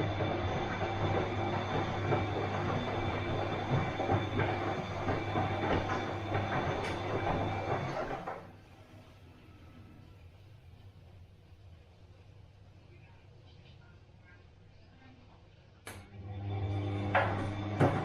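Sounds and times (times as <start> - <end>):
washing machine drum rattling: 0.0 - 8.5, 17.2 - 18.0
washing machine motor hum: 0.0 - 12.3, 15.9 - 18.0
faint background hum: 8.5 - 16.4.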